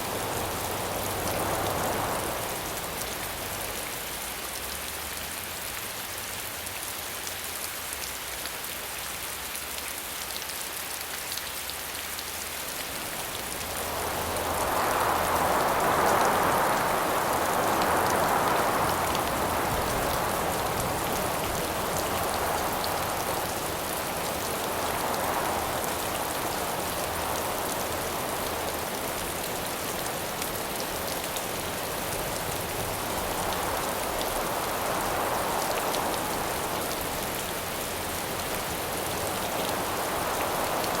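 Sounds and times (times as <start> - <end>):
howling wind gusts: 0.0 - 3.8, 12.6 - 41.0
rain hiss: 0.0 - 41.0.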